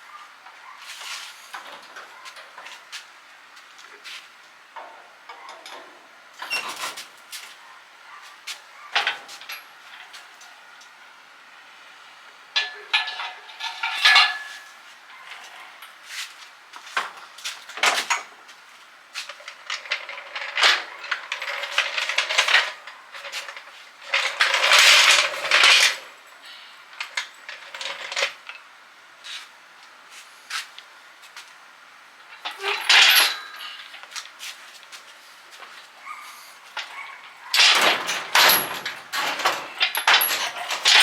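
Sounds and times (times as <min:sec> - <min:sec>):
metal parts rattling: 0:12.6 - 0:15.5, 0:19.3 - 0:26.2, 0:26.9 - 0:28.4, 0:32.3 - 0:34.2, 0:36.7 - 0:41.0
small metal objects clinking: 0:36.8 - 0:41.0.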